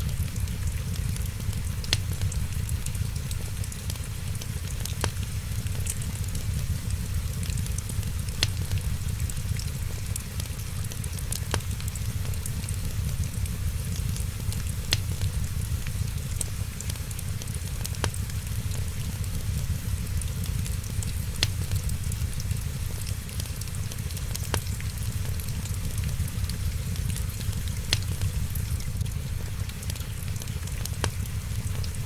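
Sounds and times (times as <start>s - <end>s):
steady low rumble: 0.0s - 32.0s
wood fire crackling: 0.0s - 32.0s
sharp fire pops: 0.1s - 3.8s, 11.1s - 16.9s, 17.7s - 29.8s.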